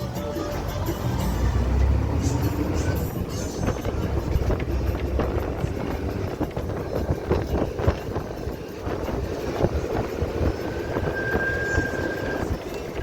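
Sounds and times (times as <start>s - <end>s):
train rumbling and clattering: 0.0s - 13.0s
thin high squeal: 10.5s - 12.8s.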